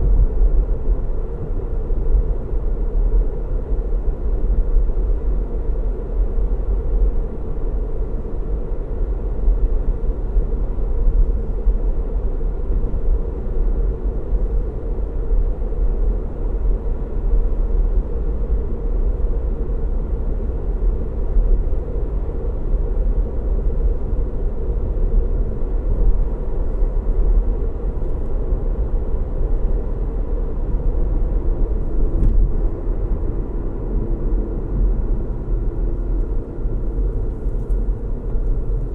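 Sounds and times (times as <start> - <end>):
car road noise: 25.1 - 38.9.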